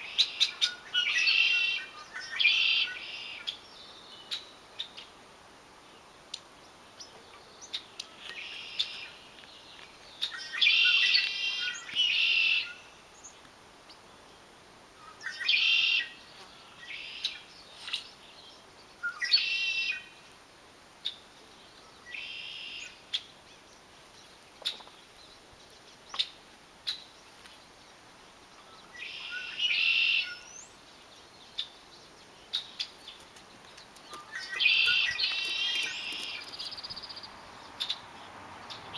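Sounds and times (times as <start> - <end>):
birds singing trilled phrases: 31.4 - 38.9
sharp bird chirps: 34.0 - 38.1.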